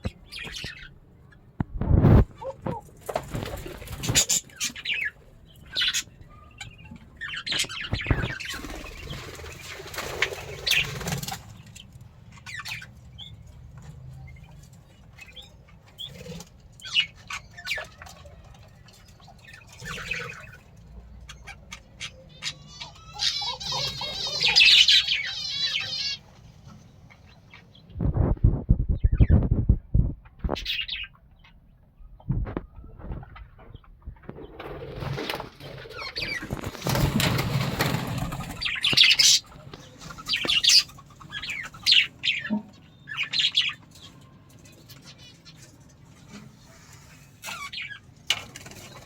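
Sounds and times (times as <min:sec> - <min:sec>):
budgerigars chirping and squawking: 0:00.0 - 0:13.6, 0:14.3 - 0:49.0
wings flapping: 0:01.8 - 0:04.8, 0:07.5 - 0:11.6, 0:34.2 - 0:40.9.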